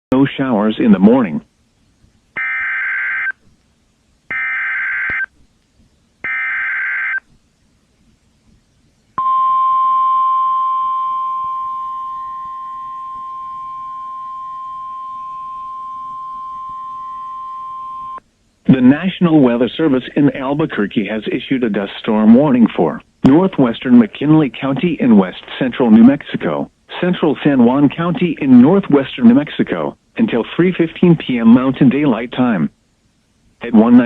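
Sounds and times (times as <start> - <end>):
steady alarm tone: 2.4 - 3.4, 4.3 - 5.3, 6.2 - 7.2, 9.2 - 18.2
warbling data tones: 9.2 - 18.2.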